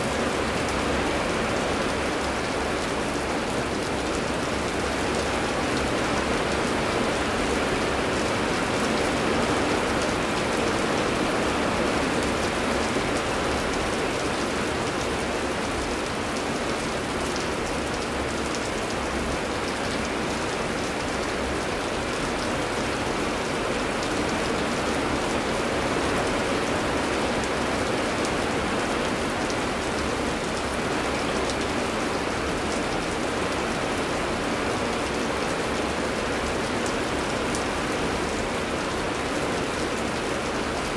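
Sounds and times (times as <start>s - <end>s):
heavy rain pattering: 0.0s - 40.9s.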